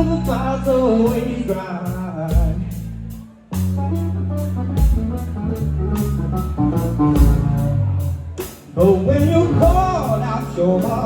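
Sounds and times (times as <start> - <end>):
bass notes: 0.0 - 11.0
guitar: 0.0 - 11.0
drum beat and cymbals: 3.6 - 5.3, 6.0 - 11.0.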